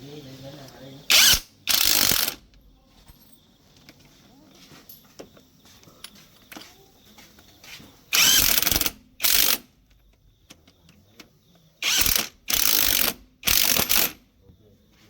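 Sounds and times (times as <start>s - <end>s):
pneumatic impact wrench bursts: 1.1s - 2.5s, 8.1s - 9.8s, 11.8s - 14.2s.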